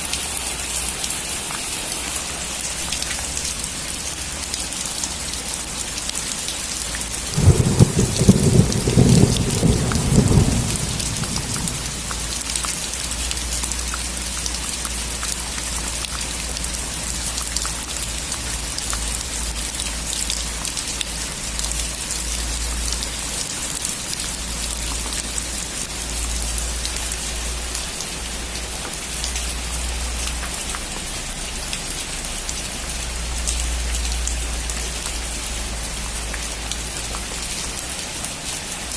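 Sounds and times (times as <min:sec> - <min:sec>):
heavy rain falling: 0:00.0 - 0:38.9
thunder rumbling: 0:07.3 - 0:12.4.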